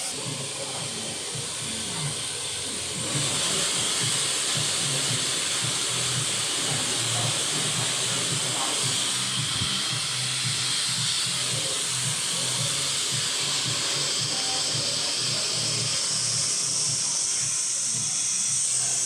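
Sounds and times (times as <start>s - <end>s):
hair dryer blowing: 0.0s - 19.0s.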